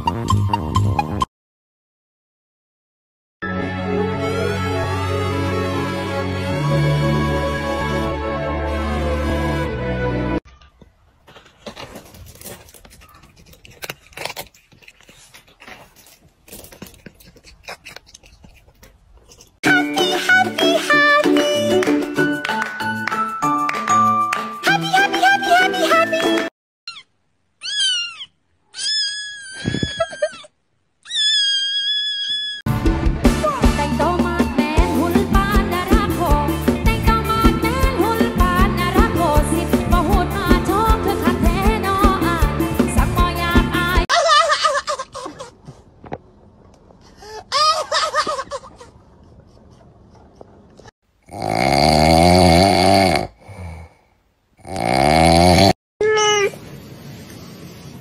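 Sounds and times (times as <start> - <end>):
short wavering cry: 26.9 - 32.6
kitten meowing: 27.6 - 30.4, 31.0 - 32.6
loud harsh snoring: 51.2 - 55.8.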